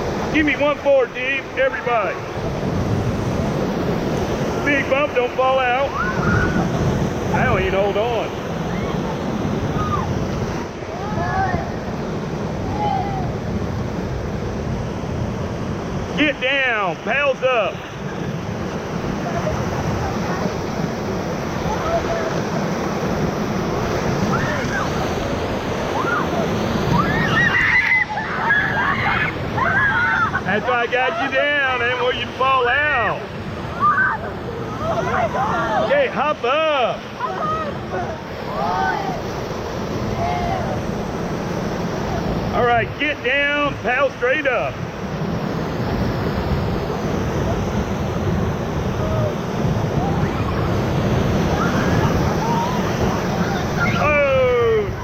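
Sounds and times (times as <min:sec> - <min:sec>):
wind buffeting microphone: 0:00.0 - 0:35.9, 0:44.7 - 0:55.0
whitewater roaring: 0:00.0 - 0:55.0
people crying and yelping: 0:25.9 - 0:31.4, 0:33.6 - 0:35.9, 0:37.1 - 0:39.2, 0:48.9 - 0:55.0.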